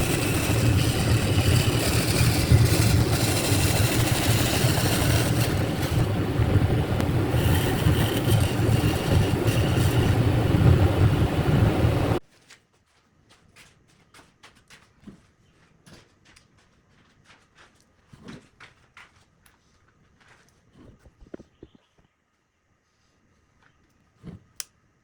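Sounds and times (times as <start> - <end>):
power tool humming and hissing: 0.0 - 12.2.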